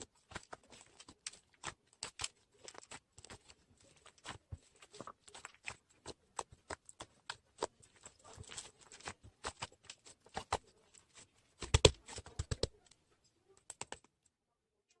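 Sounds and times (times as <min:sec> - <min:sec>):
sharp taps and clicks: 0:11.6 - 0:12.8, 0:13.6 - 0:14.2.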